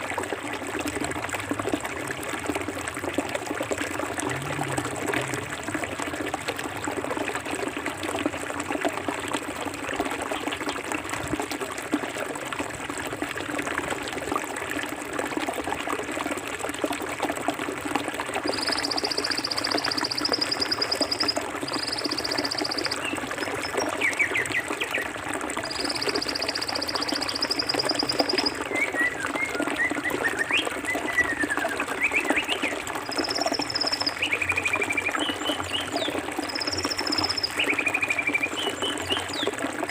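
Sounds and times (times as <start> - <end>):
stream running over rocks: 0.0 - 39.9
birds chirping: 18.5 - 25.0.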